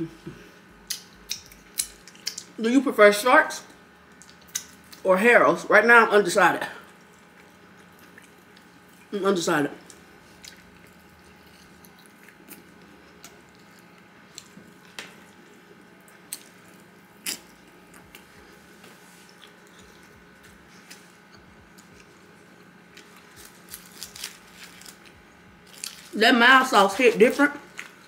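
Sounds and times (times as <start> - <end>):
person chewing: 0.8 - 2.6, 4.2 - 5.0, 6.8 - 9.1, 9.8 - 26.2
wet clicks and smacks: 0.9 - 2.6, 4.1 - 5.0.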